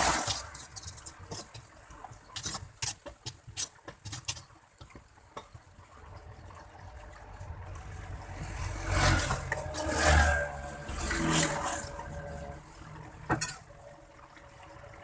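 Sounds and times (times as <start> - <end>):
vehicle engines passing: 6.1 - 15.0.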